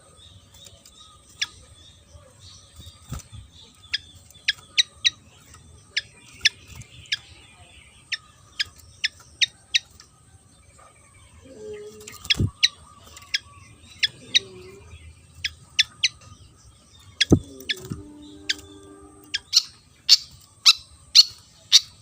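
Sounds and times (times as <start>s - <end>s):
bird chirping: 0.0s - 22.0s
faint steady hum: 9.6s - 21.7s.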